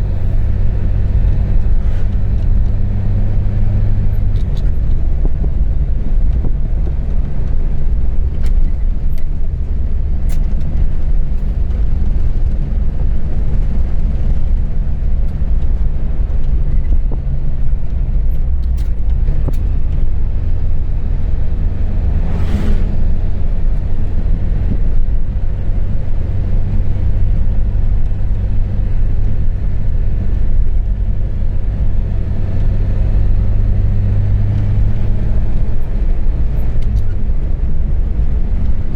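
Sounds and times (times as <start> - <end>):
vehicle engine and road rumble: 0.0 - 38.9
brief rushing sound: 21.7 - 23.5.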